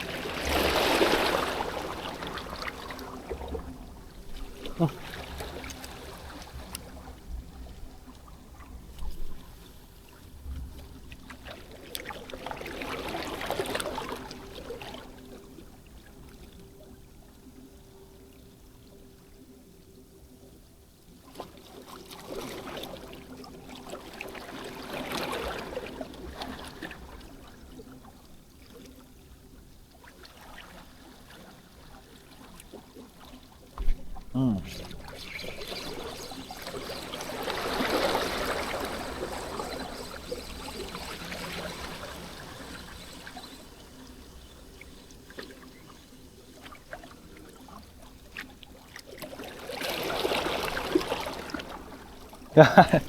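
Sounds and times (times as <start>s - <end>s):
sea waves washing on shore: 0.0s - 8.0s, 33.9s - 53.0s.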